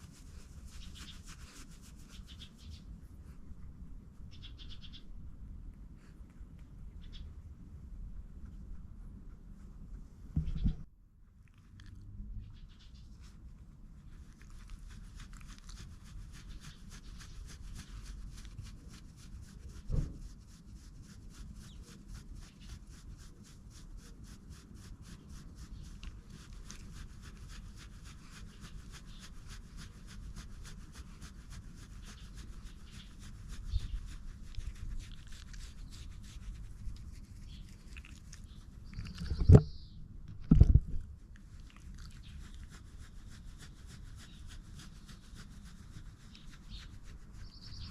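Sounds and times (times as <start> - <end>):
hands rustling dog fur: 0.0 - 3.8, 8.4 - 10.9, 12.9 - 39.6, 40.5 - 47.9
knock: 10.4 - 10.8.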